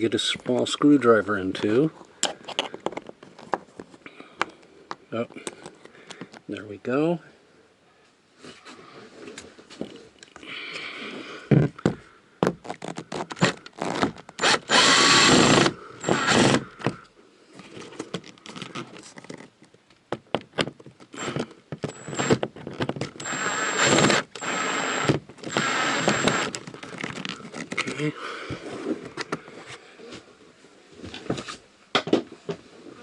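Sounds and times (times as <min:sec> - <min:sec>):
loud rasping noise: 0:13.1 - 0:16.9, 0:23.2 - 0:27.6.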